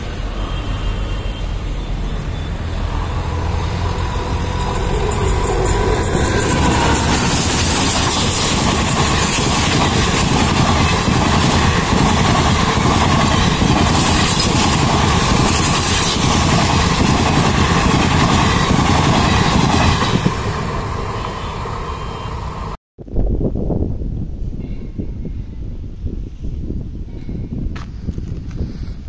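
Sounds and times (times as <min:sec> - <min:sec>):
train wheels rumbling on rails: 0:00.0 - 0:22.8.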